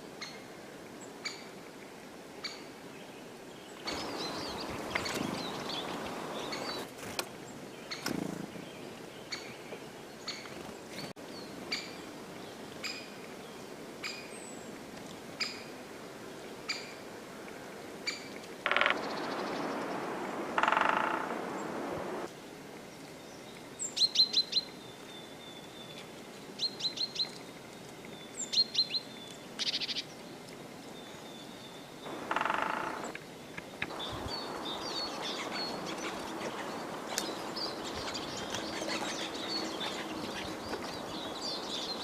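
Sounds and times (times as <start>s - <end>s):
bird call note: 18.7s - 22.3s.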